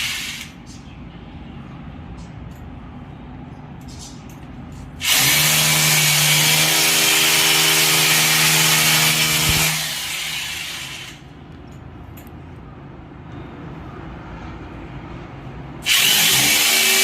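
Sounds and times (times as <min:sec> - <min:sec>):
electric power drill running: 0:00.0 - 0:00.5, 0:05.0 - 0:11.2, 0:15.8 - 0:17.0.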